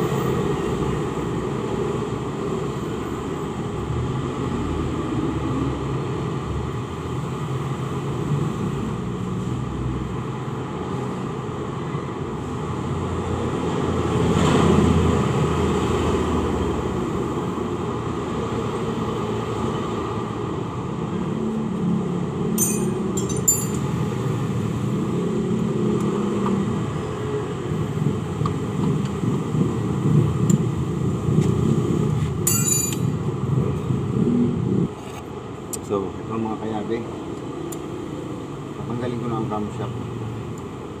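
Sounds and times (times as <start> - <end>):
tools clinking on engine parts: 22.6 - 24.0, 32.4 - 33.2.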